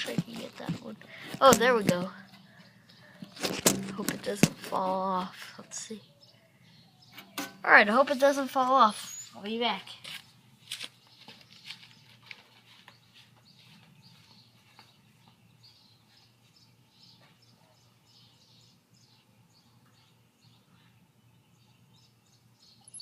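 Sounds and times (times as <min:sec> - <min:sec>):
faint bird chirps: 0:08.8 - 0:09.5, 0:12.8 - 0:23.0.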